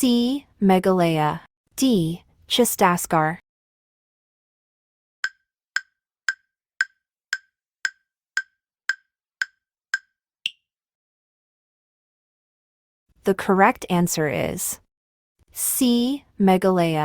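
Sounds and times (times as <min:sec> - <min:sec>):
wood-block-like timer ticks: 0:05.2 - 0:10.6.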